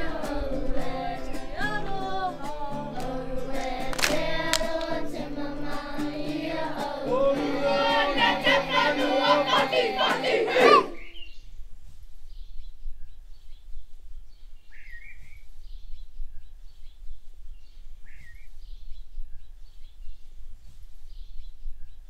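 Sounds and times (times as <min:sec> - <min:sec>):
birds chirping: 0:06.4 - 0:11.6, 0:12.3 - 0:22.0.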